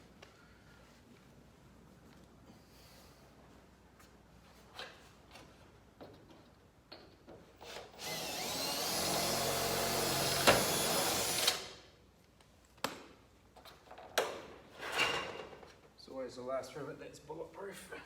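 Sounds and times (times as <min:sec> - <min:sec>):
electric drill whining: 0:07.6 - 0:11.7.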